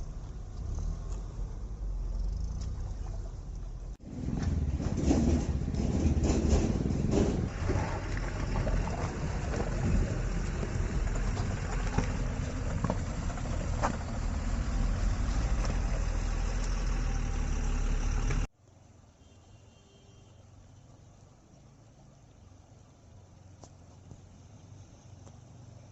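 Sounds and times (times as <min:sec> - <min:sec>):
car engine and tyres rumbling: 0:00.0 - 0:19.1, 0:20.4 - 0:25.9
knocks and rattles: 0:04.0 - 0:14.3.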